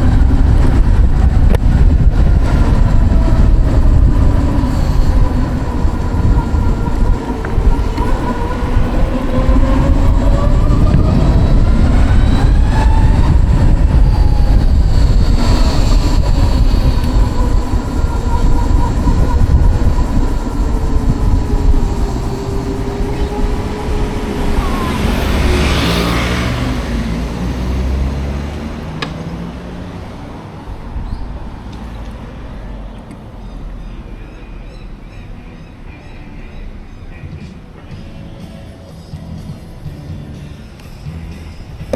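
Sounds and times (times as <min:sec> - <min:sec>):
heavy low rumble: 0:00.0 - 0:32.9
hissing swell: 0:01.8 - 0:28.9.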